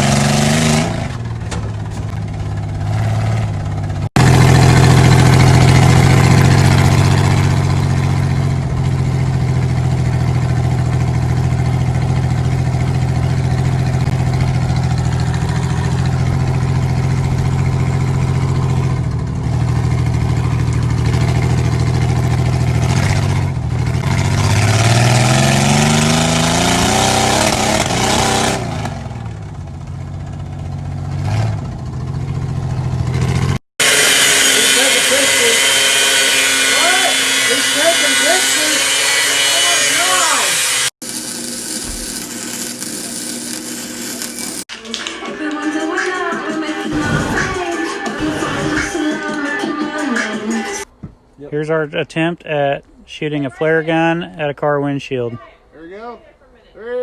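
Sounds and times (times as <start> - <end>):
car engine revving: 0.0 - 41.1, 46.6 - 49.2.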